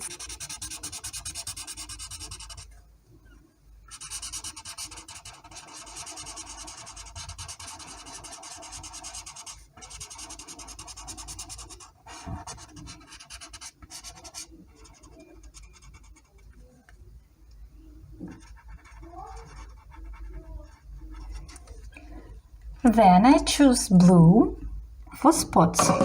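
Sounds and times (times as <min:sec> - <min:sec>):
colouring tool scratching on paper: 0:00.0 - 0:02.7, 0:03.9 - 0:16.4, 0:18.2 - 0:22.0.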